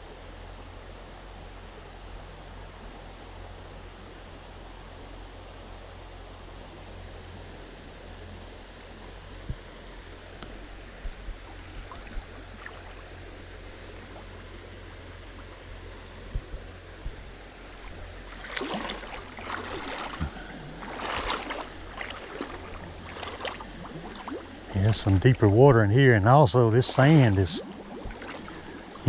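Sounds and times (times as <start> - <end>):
creek water running: 0.0 - 29.0
splashing steps wading through water: 11.4 - 14.4, 16.2 - 25.6, 26.5 - 29.0.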